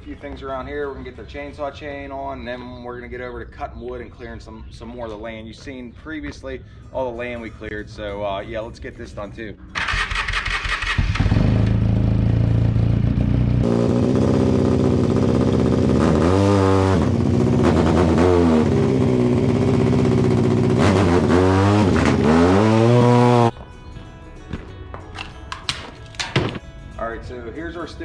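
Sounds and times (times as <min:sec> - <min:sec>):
vehicle engine running loud: 0:11.2 - 0:23.5.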